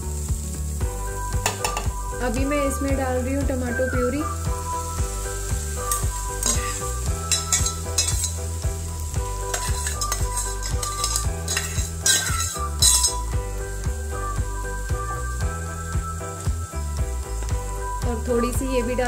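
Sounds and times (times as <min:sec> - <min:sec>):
puree sizzling in frying pan: 0:00.0 - 0:19.0
soft background music: 0:00.0 - 0:19.0
steel pot scraping: 0:05.8 - 0:08.6, 0:09.4 - 0:13.3.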